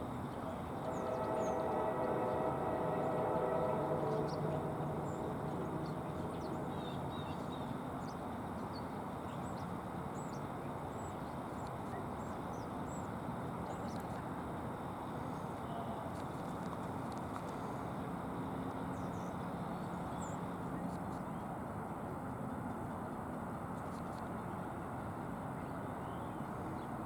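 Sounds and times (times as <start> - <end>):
locomotive horn blast: 0.6 - 7.9
steady low noise: 0.7 - 9.1.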